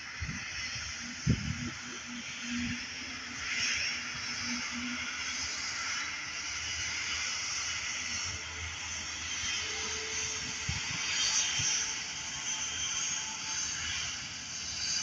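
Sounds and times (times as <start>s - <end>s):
jet airliner engines rushing: 0.0s - 15.0s.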